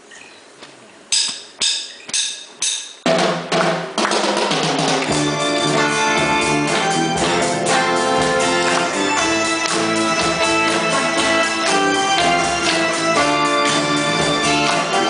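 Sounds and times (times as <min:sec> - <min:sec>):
live rock band playing: 0:03.9 - 0:15.0.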